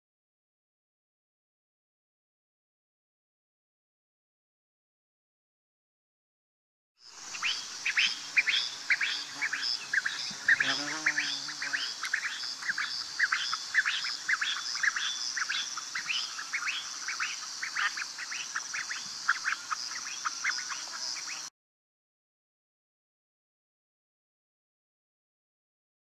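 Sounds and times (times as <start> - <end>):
lower-pitched bird call: 7.3 - 21.5.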